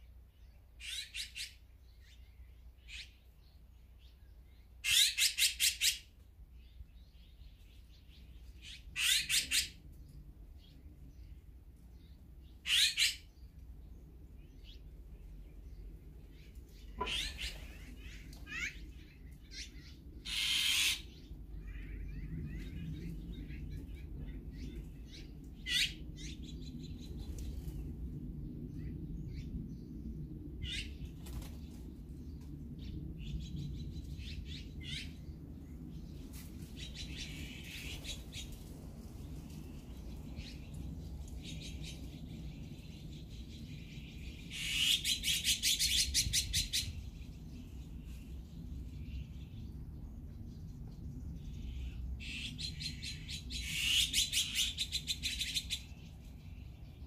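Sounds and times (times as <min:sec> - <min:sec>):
low background noise: 0:00.0 - 0:57.0
harsh bird calls: 0:00.8 - 0:03.2, 0:08.6 - 0:09.8, 0:12.5 - 0:13.5, 0:16.3 - 0:27.2, 0:41.4 - 0:48.0, 0:51.3 - 0:56.0.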